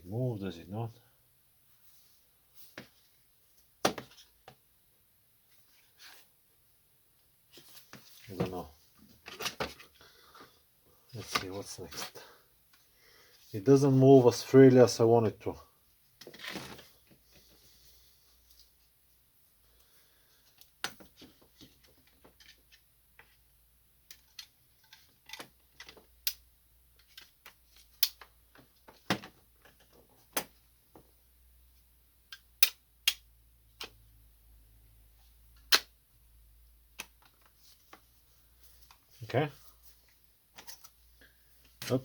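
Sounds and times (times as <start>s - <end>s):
plastic parts clicking and snapping: 24.0s - 26.4s.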